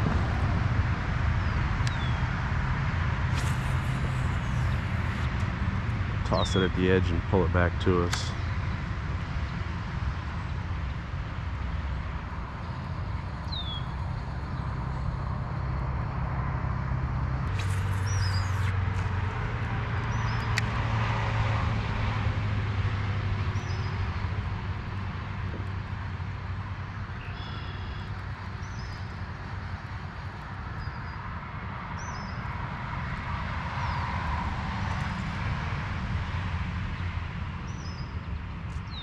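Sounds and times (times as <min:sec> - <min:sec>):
low motor drone: 0:00.0 - 0:09.3, 0:10.2 - 0:30.6
outdoor hiss: 0:03.3 - 0:07.0, 0:17.5 - 0:19.4
bird chirps: 0:17.6 - 0:18.7, 0:27.2 - 0:29.1.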